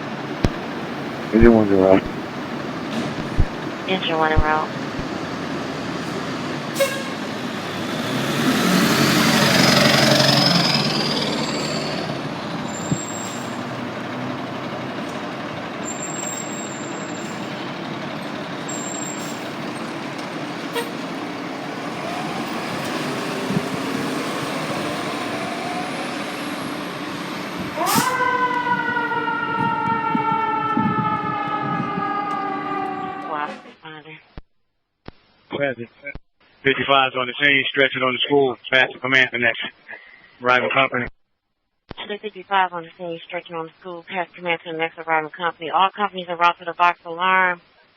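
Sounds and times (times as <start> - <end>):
fire engine siren: 4.4 - 33.8
fire engine horn blast: 6.0 - 10.6, 11.2 - 33.8.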